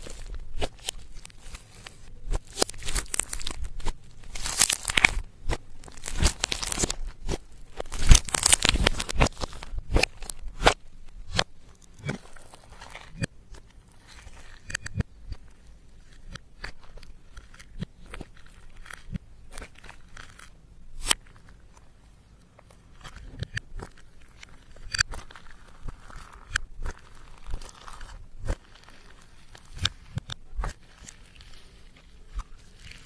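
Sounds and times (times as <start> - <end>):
slime squished by hand: 0.0 - 21.4
sticky clicks and pops: 2.3 - 12.2, 14.6 - 15.4.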